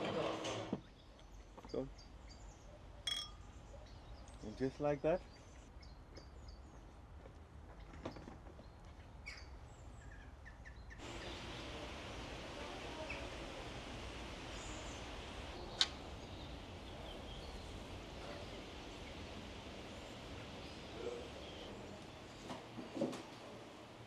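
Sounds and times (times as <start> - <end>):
small birds chirping: 0.8 - 7.0, 7.8 - 22.8
steady hiss: 11.0 - 24.0.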